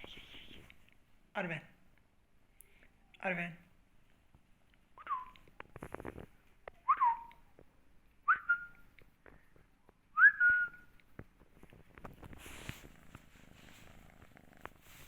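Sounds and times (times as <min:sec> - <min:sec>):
short whistled notes: 0:06.8 - 0:07.4
light tapping and scuffling: 0:11.0 - 0:15.0.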